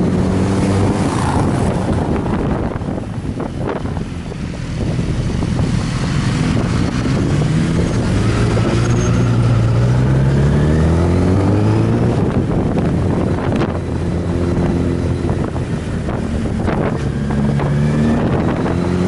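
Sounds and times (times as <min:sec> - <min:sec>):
wind noise: 0:00.0 - 0:19.0.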